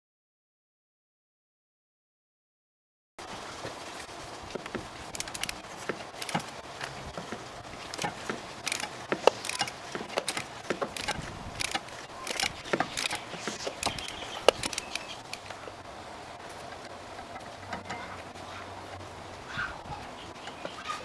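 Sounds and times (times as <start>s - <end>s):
socket wrench clicking: 5.2s - 5.6s, 6.2s - 6.5s, 7.9s - 15.6s.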